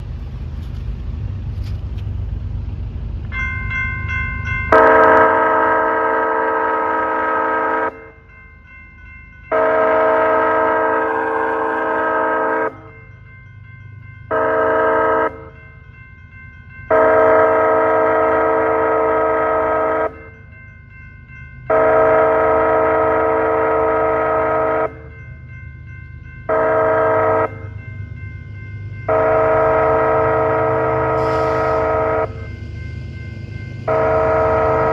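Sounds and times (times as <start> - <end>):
train rumble: 0.0 - 34.9
locomotive air horn blasts: 4.7 - 8.1, 9.5 - 12.9, 14.3 - 15.5, 16.9 - 20.2, 21.7 - 25.0, 26.5 - 27.7, 29.1 - 32.4, 33.9 - 34.9.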